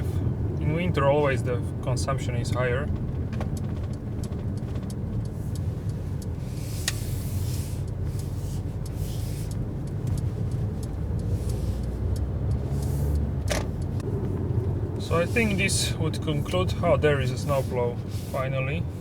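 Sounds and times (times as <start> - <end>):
car cabin road and engine rumble: 0.0 - 19.0
faint ticks: 2.9 - 14.4.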